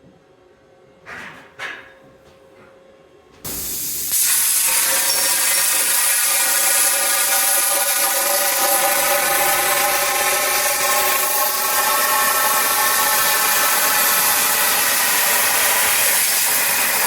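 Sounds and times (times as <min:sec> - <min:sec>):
plasma cutter torch hissing: 0:03.5 - 0:17.0.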